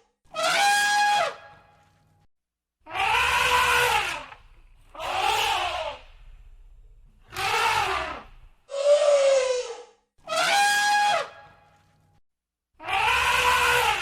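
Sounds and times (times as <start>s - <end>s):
elephant trumpeting: 2.9s - 9.2s.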